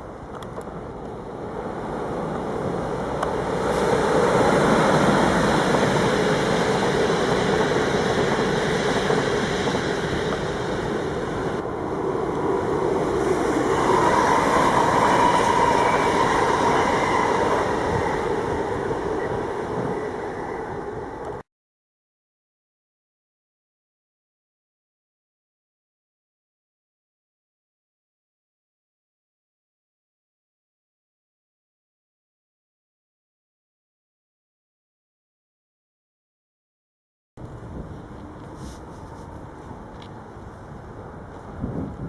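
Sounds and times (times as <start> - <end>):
train rumbling past: 0.0 - 21.4.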